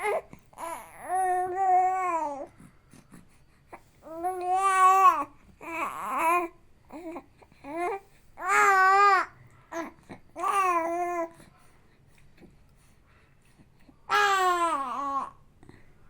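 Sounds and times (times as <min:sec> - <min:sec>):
baby cooing and babbling: 0:00.0 - 0:02.6, 0:03.7 - 0:11.4, 0:14.1 - 0:15.4.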